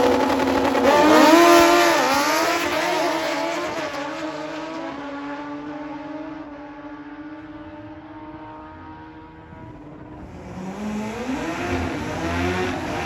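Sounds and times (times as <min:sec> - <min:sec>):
motorbike engine accelerating: 0:00.0 - 0:05.4, 0:09.2 - 0:13.0.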